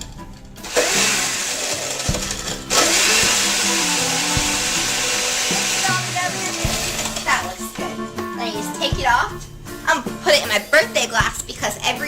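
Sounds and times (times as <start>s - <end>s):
blender running: 0.6s - 7.8s.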